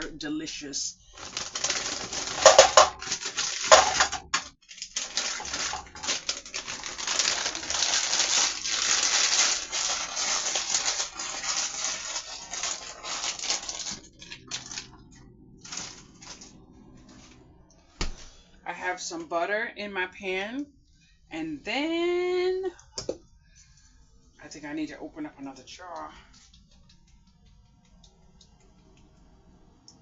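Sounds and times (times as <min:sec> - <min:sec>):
plastic bag crinkling: 0:01.0 - 0:15.0, 0:15.6 - 0:17.3.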